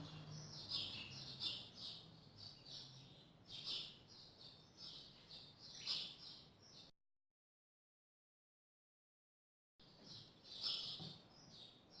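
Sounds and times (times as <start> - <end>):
bird chirping: 0.0 - 6.9, 9.8 - 12.0.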